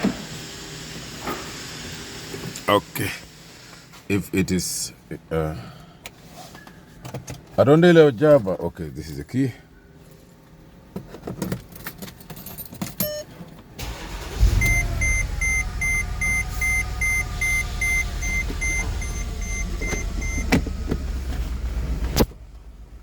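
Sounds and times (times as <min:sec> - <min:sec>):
dashboard warning chime beeping: 0:13.0 - 0:13.3, 0:13.9 - 0:21.0
car engine starting and idling: 0:13.8 - 0:23.0.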